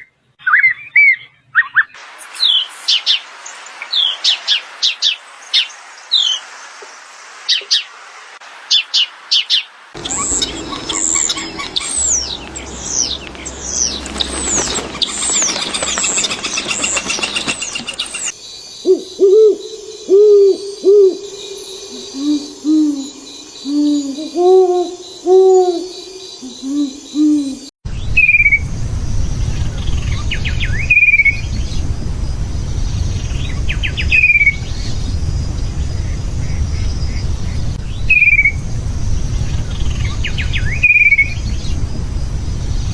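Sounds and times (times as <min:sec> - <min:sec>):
short falling bird calls: 0:08.8 - 0:19.6
high bird chirps: 0:09.4 - 0:20.5
owl-like hooting: 0:10.0 - 0:12.4, 0:14.4 - 0:27.7
low rumble: 0:27.9 - 0:42.9.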